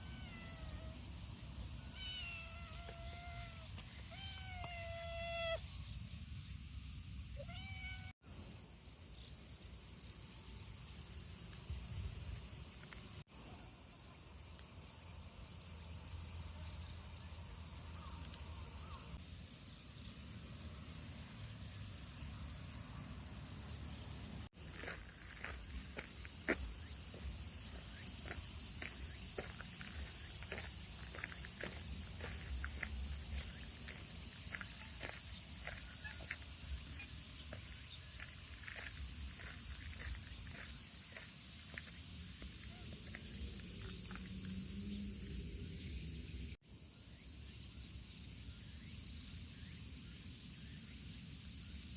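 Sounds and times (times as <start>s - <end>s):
cat meowing: 0.0s - 0.9s, 1.9s - 5.6s, 7.4s - 8.1s
insects hissing: 0.0s - 51.9s.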